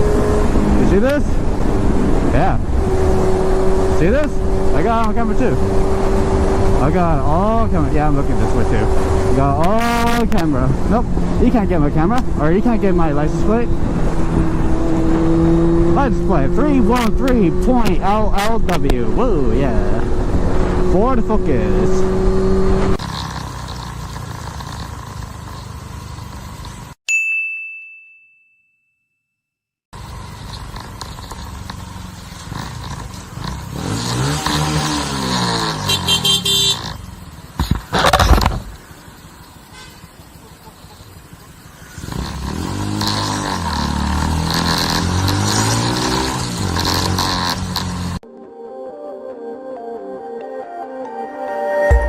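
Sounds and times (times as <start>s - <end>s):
motorcycle engine accelerating: 0.0s - 27.0s, 29.9s - 48.3s
vehicle road and wind noise: 0.0s - 27.0s, 30.0s - 48.3s
bright ding: 27.1s - 29.4s.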